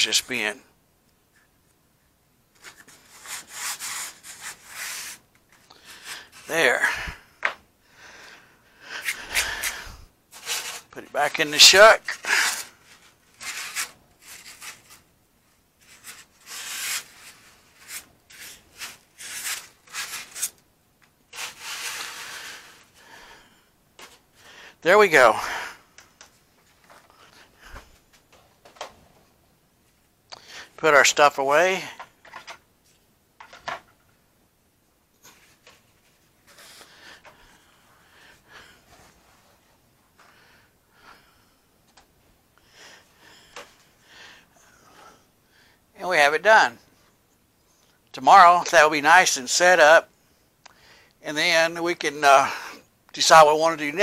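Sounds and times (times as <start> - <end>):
soft rustling and shuffling: 25.1 - 34.2, 35.1 - 40.6.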